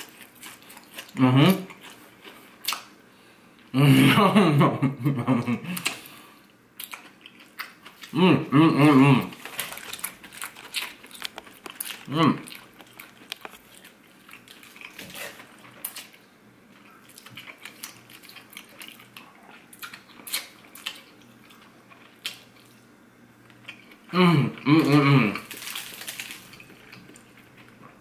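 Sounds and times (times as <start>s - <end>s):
person chewing crunchy food: 0.0s - 3.0s, 5.7s - 8.2s, 8.8s - 28.0s
person humming: 8.2s - 9.3s, 12.1s - 12.5s, 24.1s - 25.5s.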